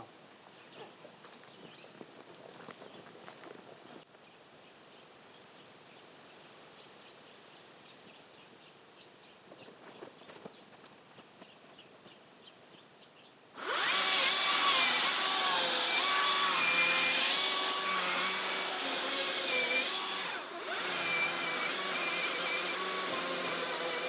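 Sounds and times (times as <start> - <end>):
power tool motor whine: 13.6 - 24.0.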